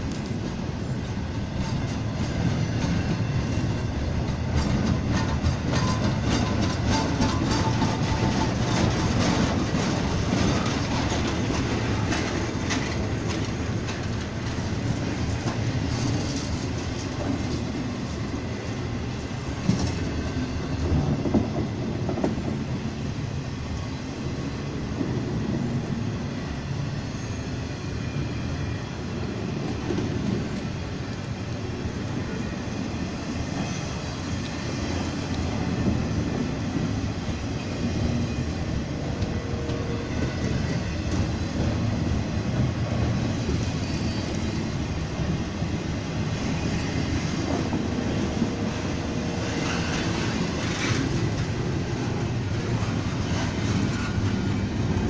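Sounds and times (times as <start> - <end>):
wheels clacking over rail joints: 0.0 - 18.3, 33.5 - 55.0
train wheels rumbling on rails: 0.0 - 55.0.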